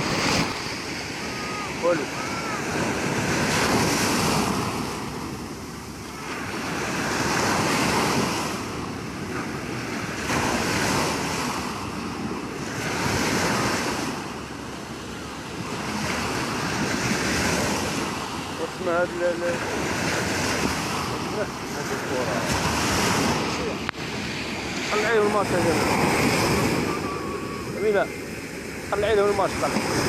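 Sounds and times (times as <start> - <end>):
sea waves breaking: 0.0 - 30.0.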